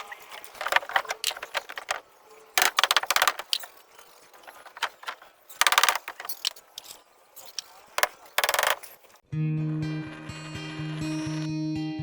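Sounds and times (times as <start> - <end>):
small hard parts clicking: 0.0 - 9.2.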